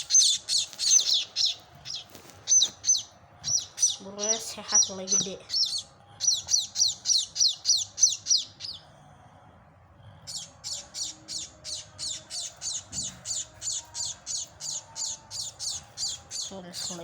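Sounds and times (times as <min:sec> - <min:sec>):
young birds chirping rapidly: 0:00.0 - 0:08.8, 0:10.3 - 0:17.0.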